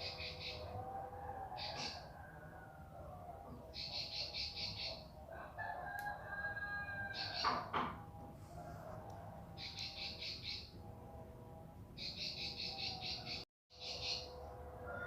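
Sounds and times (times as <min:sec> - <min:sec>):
bird rapid high chirping: 0:12.0 - 0:14.3.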